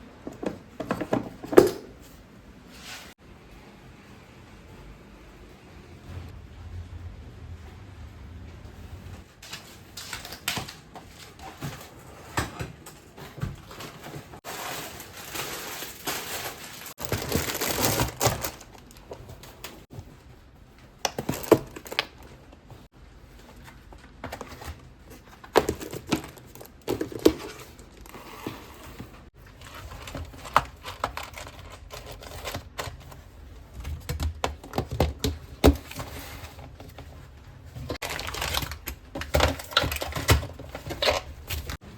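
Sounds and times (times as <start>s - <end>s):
packaging crinkling: 14.4s - 19.6s, 29.4s - 33.2s, 37.9s - 41.8s.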